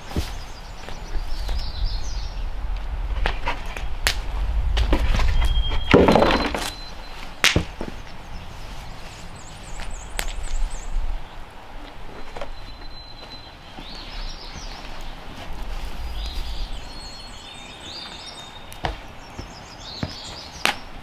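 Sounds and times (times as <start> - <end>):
birds chirping: 0.0 - 21.0
sharp knocks and thuds: 4.8 - 8.0.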